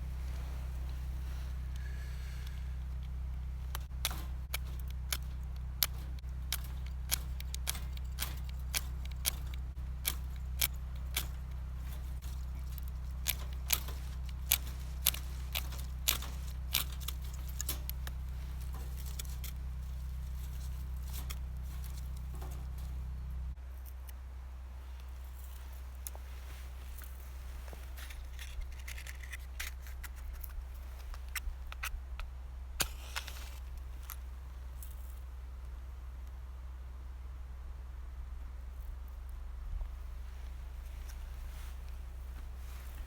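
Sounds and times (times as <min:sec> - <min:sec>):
wood fire crackling: 0:00.0 - 0:23.6, 0:39.9 - 0:43.0
steady low rumble: 0:00.0 - 0:43.0.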